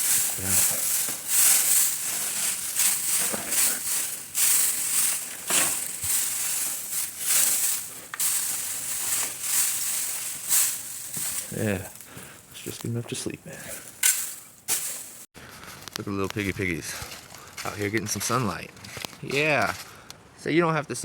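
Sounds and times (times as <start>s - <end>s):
rake rustling through hay: 0.0s - 12.1s, 13.8s - 15.3s.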